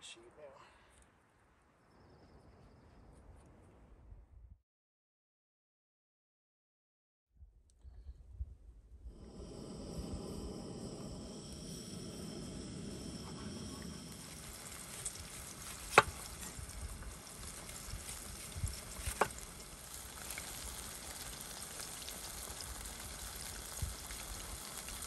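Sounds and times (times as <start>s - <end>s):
patty sizzling in a pan: 9.1s - 25.0s.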